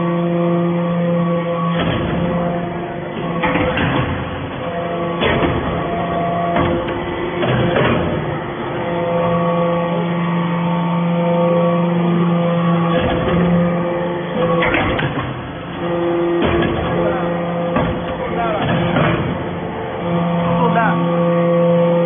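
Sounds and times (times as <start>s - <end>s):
hydraulic press whine: 0.0s - 22.0s
sharp knocks: 1.7s - 2.6s, 5.0s - 8.3s, 14.4s - 19.6s.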